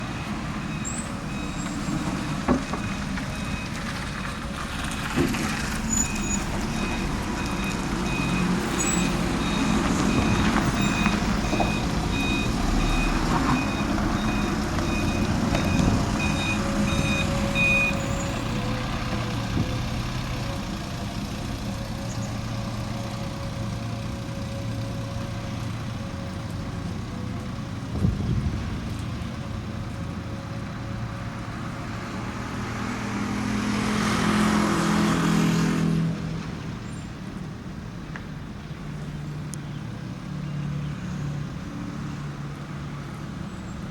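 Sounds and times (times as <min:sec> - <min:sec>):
reversing alarm beeping: 0:00.0 - 0:03.8, 0:05.9 - 0:18.9
diesel engine idling: 0:00.0 - 0:32.4.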